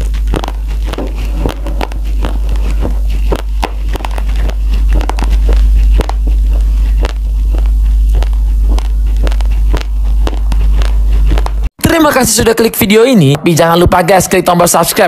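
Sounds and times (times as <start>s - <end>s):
rice grains crunched between teeth: 0.0s - 6.2s
steady low rumble: 0.0s - 12.7s.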